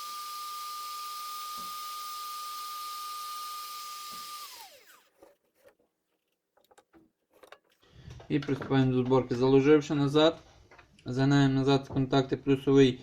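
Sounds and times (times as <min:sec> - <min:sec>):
hot air gun whining: 0:00.0 - 0:05.1.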